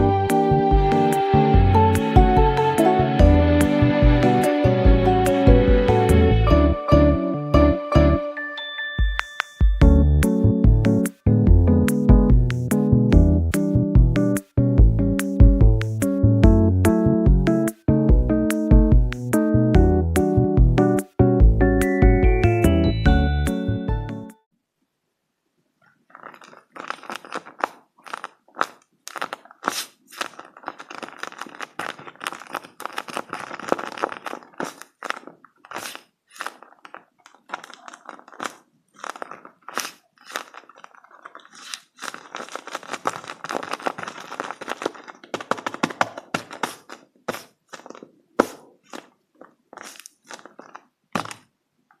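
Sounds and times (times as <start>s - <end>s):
paper and tape crinkling: 25.8s - 51.5s.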